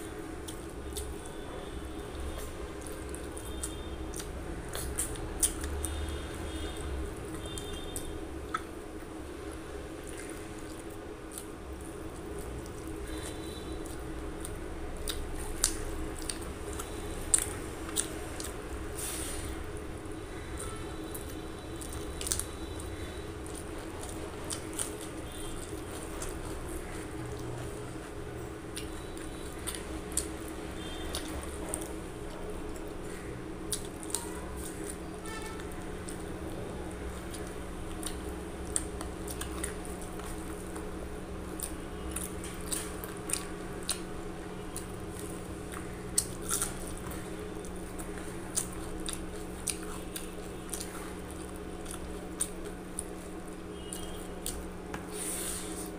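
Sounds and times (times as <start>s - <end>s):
steady low hum: 0.0s - 55.9s
wet chewing of food: 0.0s - 55.9s
mouth clicks and smacks: 7.4s - 8.8s.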